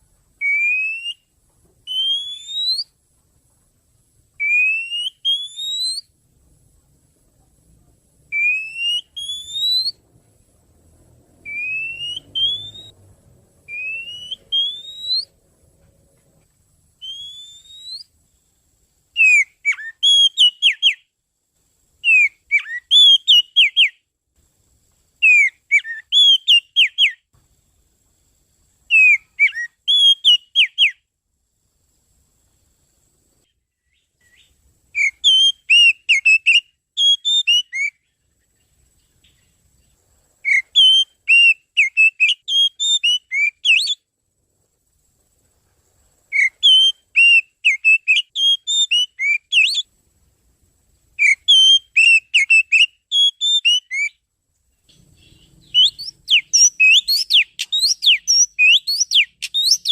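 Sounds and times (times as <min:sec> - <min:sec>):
songbird whistling song: 0:00.2 - 0:03.0, 0:04.3 - 0:06.2, 0:08.3 - 0:10.1, 0:11.4 - 0:15.4, 0:16.9 - 0:21.2, 0:22.0 - 0:24.1, 0:25.2 - 0:27.4, 0:28.8 - 0:31.1, 0:33.4 - 0:44.1, 0:46.3 - 0:49.9, 0:51.2 - 0:59.9.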